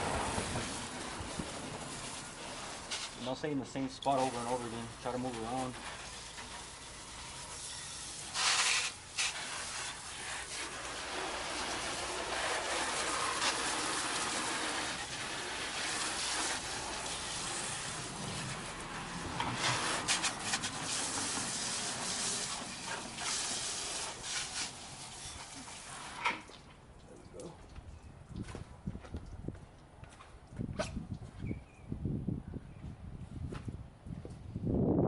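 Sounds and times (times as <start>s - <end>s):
hose spraying water: 0.0s - 26.7s.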